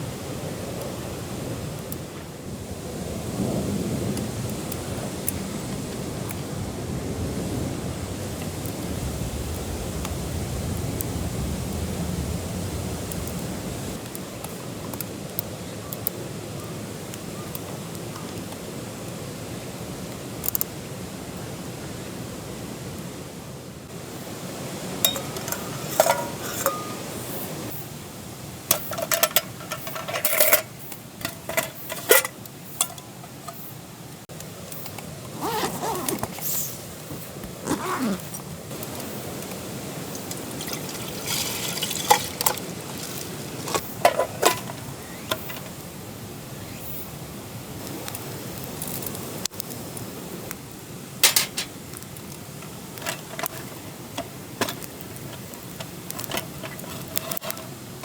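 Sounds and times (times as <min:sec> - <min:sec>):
steady low hiss: 0:00.0 - 0:58.0
cookware and utensils clinking: 0:25.0 - 0:27.3, 0:28.7 - 0:33.6, 0:40.2 - 0:45.7, 0:51.2 - 0:51.8
liquid being poured or stirred: 0:40.2 - 0:44.7.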